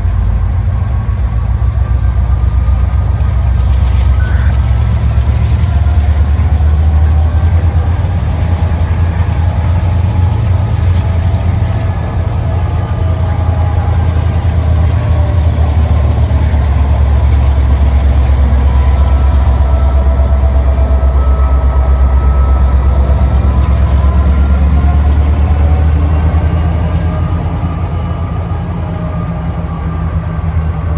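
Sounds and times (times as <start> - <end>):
diesel locomotives rumbling: 0.0 - 30.9
thin high whine: 16.4 - 30.8.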